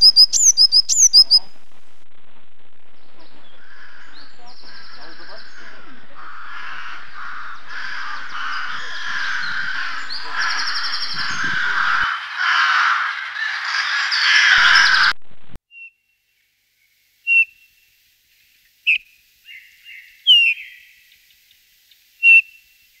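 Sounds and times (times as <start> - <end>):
flock of birds chattering: 0.0 - 1.5, 3.0 - 15.2
sharp bird calls: 0.0 - 1.5, 3.0 - 16.0, 17.3 - 17.8, 18.9 - 22.8.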